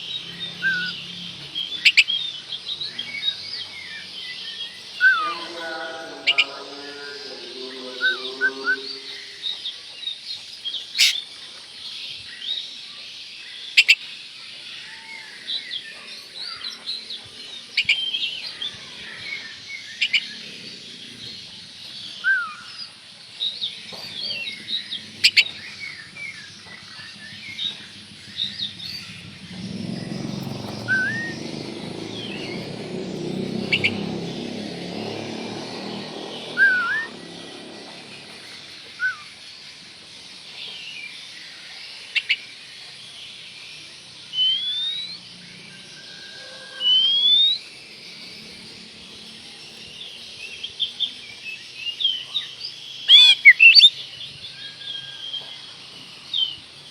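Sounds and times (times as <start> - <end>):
bird singing chirps and whistles: 0.0 - 7.2, 7.8 - 11.3, 14.8 - 20.6, 21.9 - 39.6, 42.1 - 42.5, 44.2 - 47.8, 49.7 - 56.7
low rumbling noise: 24.1 - 39.1.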